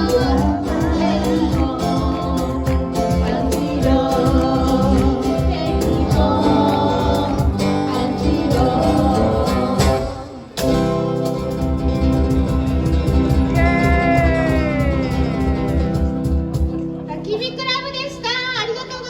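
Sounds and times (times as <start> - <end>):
person singing: 0.0 - 10.8, 13.4 - 16.6
guitar: 0.0 - 19.0
live band playing: 0.0 - 19.0.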